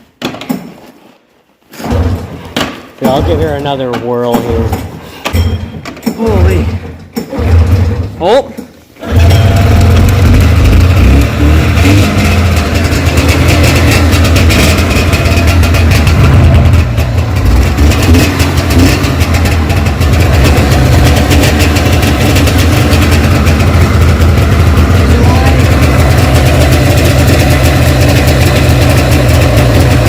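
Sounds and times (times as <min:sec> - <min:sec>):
snowmobile engine running: 0:09.1 - 0:30.0.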